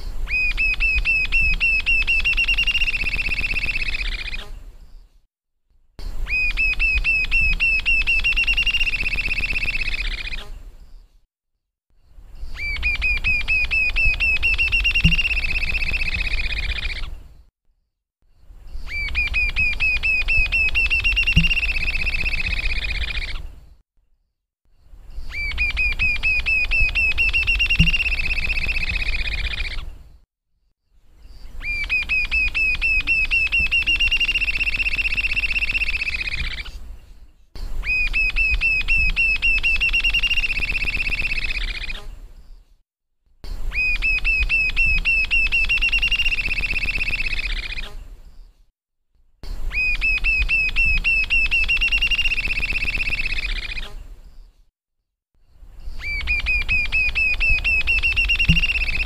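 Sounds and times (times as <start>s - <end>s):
bird singing a fast trill: 0.0s - 4.4s, 6.3s - 11.1s, 12.0s - 17.1s, 18.4s - 23.4s, 24.8s - 29.8s, 31.2s - 36.8s, 37.9s - 42.6s, 43.6s - 47.9s, 49.8s - 54.5s, 55.8s - 59.0s.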